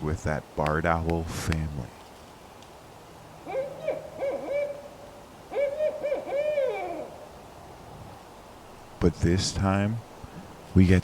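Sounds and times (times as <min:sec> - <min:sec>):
owl hooting: 0:03.4 - 0:07.4.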